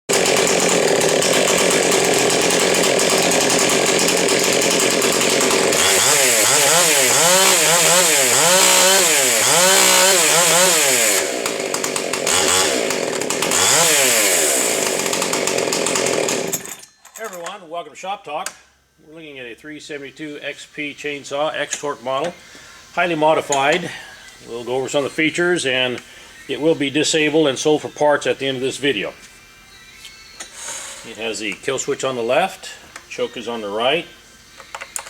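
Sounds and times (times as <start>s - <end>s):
chainsaw revving: 0.1s - 16.8s.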